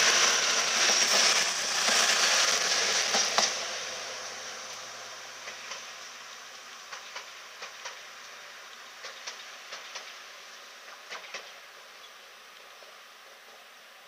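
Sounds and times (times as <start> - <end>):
wheels clicking over rail joints: 0.0 - 13.7
train running hiss: 0.0 - 14.0.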